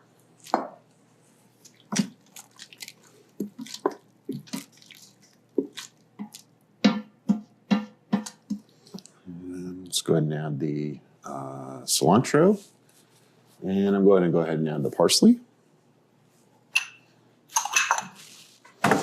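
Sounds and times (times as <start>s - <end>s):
utensils and dishes clinking: 16.8s - 18.2s.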